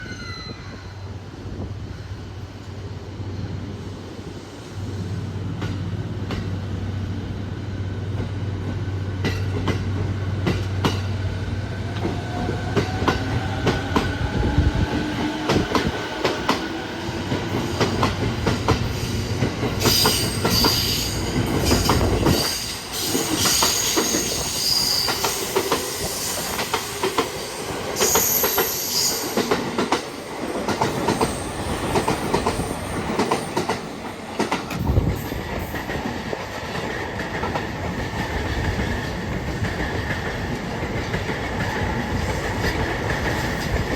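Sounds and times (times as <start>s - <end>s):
high-pitched wheel squeal: 19.9s - 26.5s.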